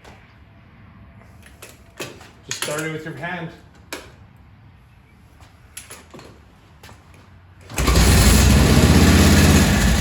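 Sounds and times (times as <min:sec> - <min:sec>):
motorcycle engine running: 0:07.7 - 0:10.0.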